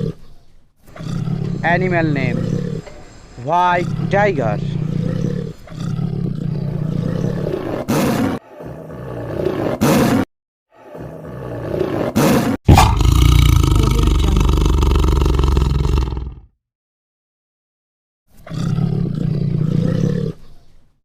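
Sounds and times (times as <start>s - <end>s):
hissing snarls: 0.0s - 0.3s, 0.9s - 16.5s
tiger growling and roaring: 0.0s - 16.5s, 18.3s - 20.7s.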